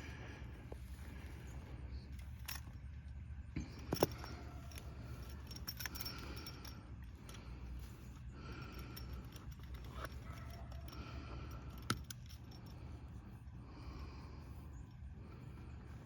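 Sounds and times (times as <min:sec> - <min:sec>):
low steady rumble: 0:00.0 - 0:16.0
small clinks: 0:01.3 - 0:13.3.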